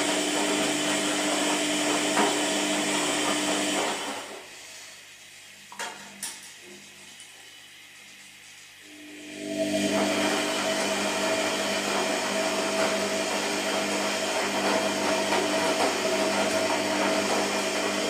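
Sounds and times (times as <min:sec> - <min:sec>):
washing machine motor running: 0:00.0 - 0:04.6, 0:07.7 - 0:18.0.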